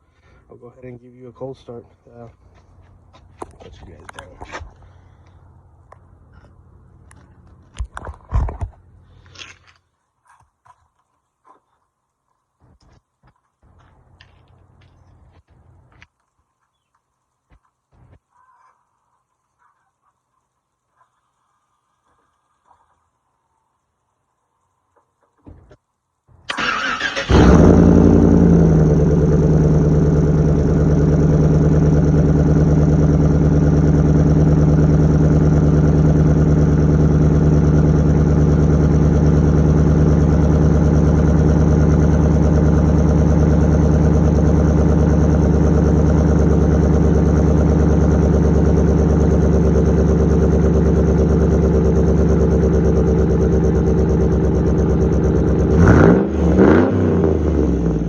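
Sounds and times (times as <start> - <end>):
loud truck engine starting and idling: 26.5 - 58.0.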